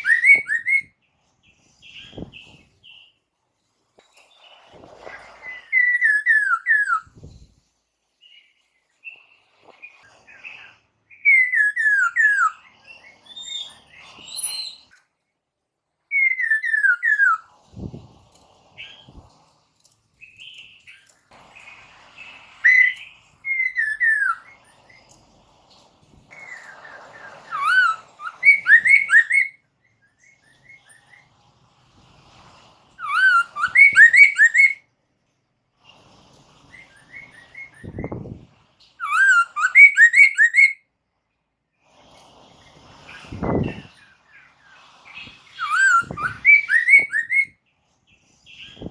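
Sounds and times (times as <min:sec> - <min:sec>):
songbird whistling falling notes: 0:00.0 - 0:00.9, 0:04.8 - 0:07.4, 0:11.2 - 0:12.6, 0:16.1 - 0:17.4, 0:22.6 - 0:24.7, 0:26.4 - 0:29.6, 0:33.0 - 0:34.8, 0:39.0 - 0:40.8, 0:45.2 - 0:47.6.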